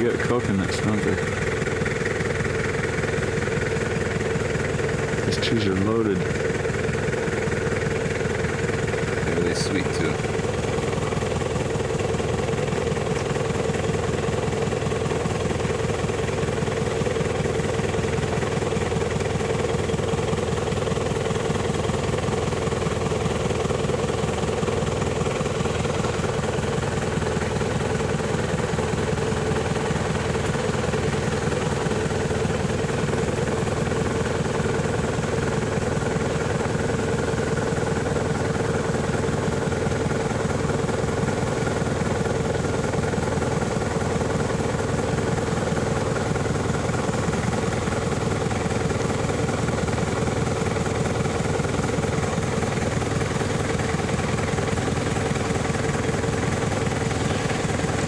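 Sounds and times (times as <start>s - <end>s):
vehicle engine and road noise: 5.2s - 7.9s.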